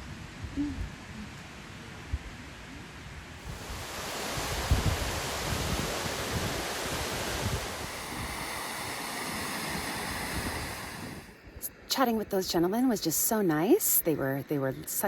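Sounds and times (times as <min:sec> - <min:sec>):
wind buffeting microphone: 0:03.3 - 0:11.6
rushing water: 0:03.4 - 0:11.4.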